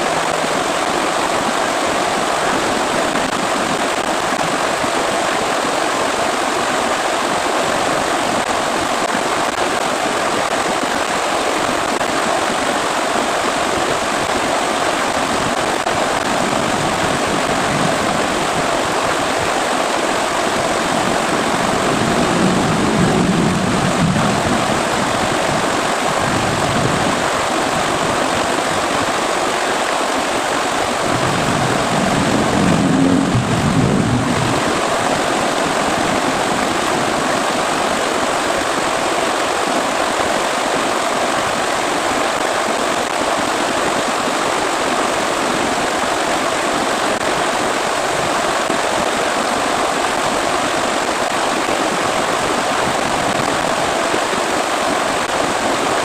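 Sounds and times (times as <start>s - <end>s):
heavy rain falling: 0.0s - 56.0s
low rumble: 31.1s - 34.7s.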